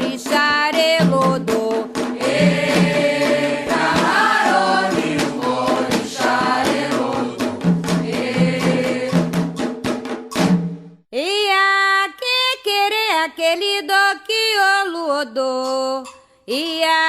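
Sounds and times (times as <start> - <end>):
hand drums and percussion: 0.0 - 11.1
call and response chant: 2.2 - 7.5.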